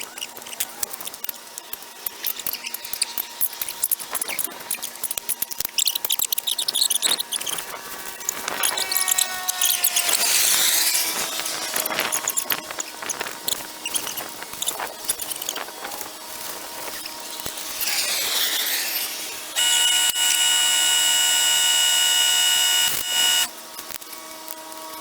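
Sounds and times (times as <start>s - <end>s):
high squeaks and clicks: 0.0s - 16.0s, 16.8s - 23.5s
power tool whining: 6.8s - 24.0s.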